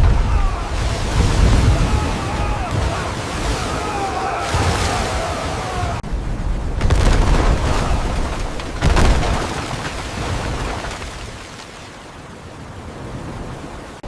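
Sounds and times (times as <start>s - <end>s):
deep rumbling crash: 0.0s - 3.0s, 6.0s - 11.0s
rushing rumble: 0.0s - 11.6s.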